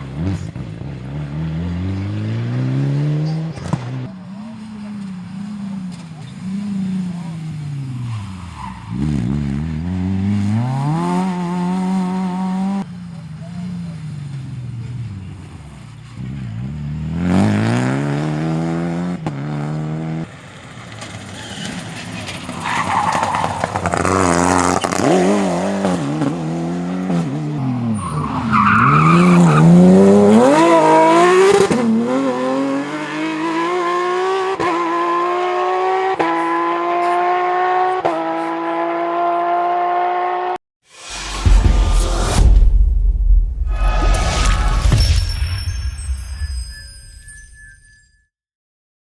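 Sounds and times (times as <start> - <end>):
rally car engines revving: 0.0 - 40.6
tyre squeal: 7.7 - 9.3, 21.3 - 26.1, 27.6 - 31.6.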